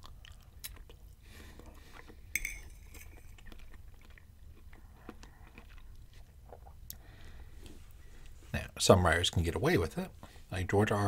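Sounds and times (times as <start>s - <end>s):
close-up chewing: 0.0s - 8.4s
metal fork clinking on plate: 2.4s - 3.4s.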